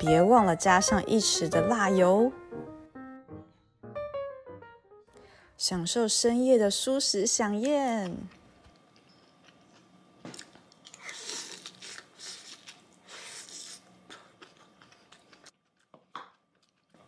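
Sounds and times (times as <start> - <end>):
person chewing food: 8.7 - 17.0.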